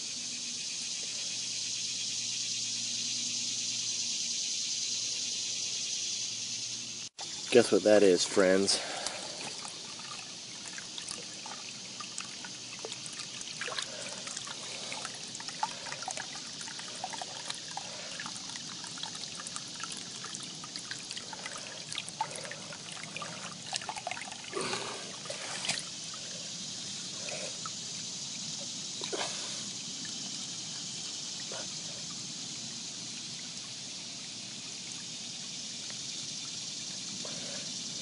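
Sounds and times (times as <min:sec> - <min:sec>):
water trickling in a ditch: 0:00.0 - 0:38.0.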